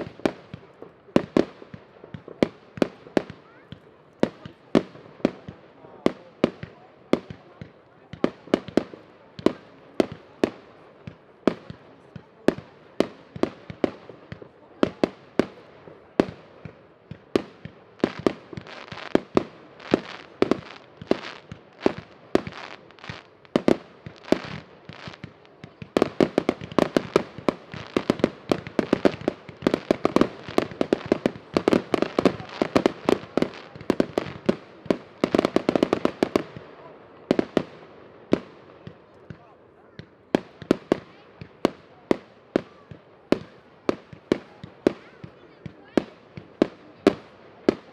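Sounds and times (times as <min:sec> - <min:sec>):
fireworks banging: 0:04.3 - 0:39.4.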